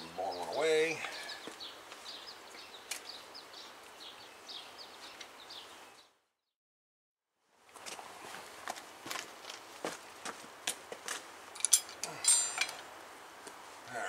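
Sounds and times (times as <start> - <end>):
small birds chirping: 0.0 - 6.2
faint outdoor background noise: 0.0 - 6.3, 7.3 - 14.0.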